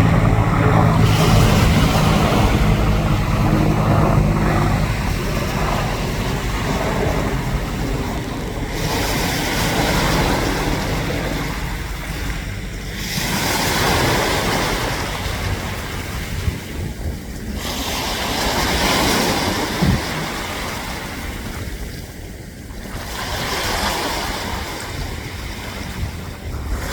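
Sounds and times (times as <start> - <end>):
sea waves breaking on shore: 0.0 - 26.9
wind rumbling on microphone: 0.0 - 26.9.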